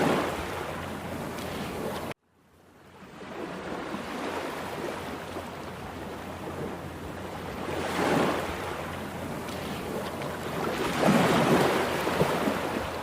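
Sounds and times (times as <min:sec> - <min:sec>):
wave crashing: 0:00.0 - 0:02.1, 0:09.4 - 0:13.0
waves breaking: 0:00.0 - 0:02.2, 0:02.9 - 0:13.0.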